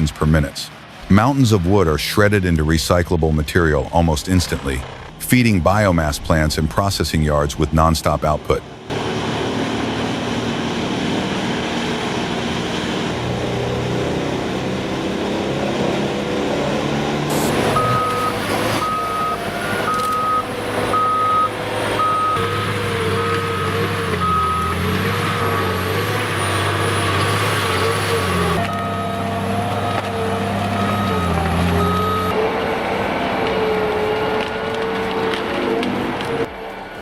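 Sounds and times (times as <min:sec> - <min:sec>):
heavy machinery engine running: 0:00.0 - 0:37.0
reversing alarm beeping: 0:17.3 - 0:27.1, 0:27.8 - 0:32.4.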